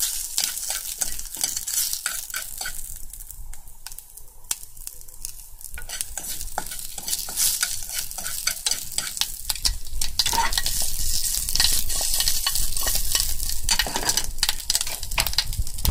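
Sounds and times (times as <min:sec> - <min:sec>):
food sizzling in a frying pan: 0:00.0 - 0:15.9
utensil clicking and scraping pan: 0:00.3 - 0:02.9, 0:05.8 - 0:15.9.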